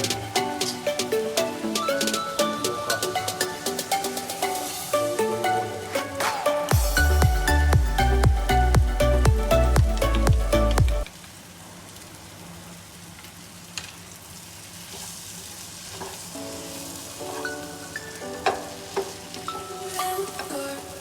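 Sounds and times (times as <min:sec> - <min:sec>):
background music: 0:00.0 - 0:11.1, 0:16.4 - 0:21.0
egg sizzling in a pan: 0:11.0 - 0:21.0.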